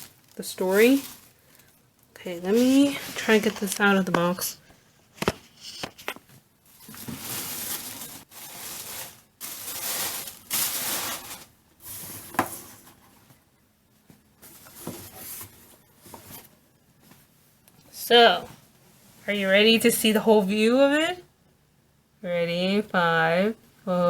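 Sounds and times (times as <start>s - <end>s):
plastic and bubble wrap crinkling: 0.0s - 13.0s.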